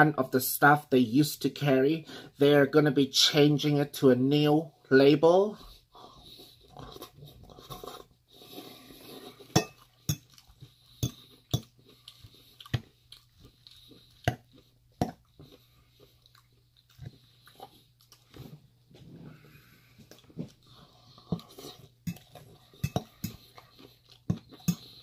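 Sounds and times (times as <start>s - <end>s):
crunchy chewing of salad: 6.0s - 25.0s
fork clinking against bowl: 9.6s - 10.3s, 22.1s - 23.4s, 24.6s - 24.9s
fork stirring salad: 21.4s - 25.0s.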